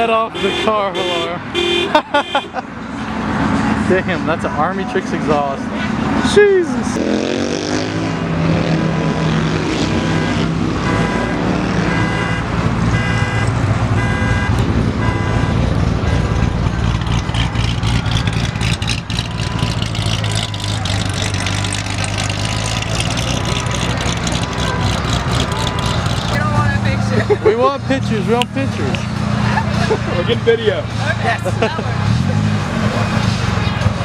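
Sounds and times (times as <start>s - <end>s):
car exhaust drone: 9.8s - 27.0s.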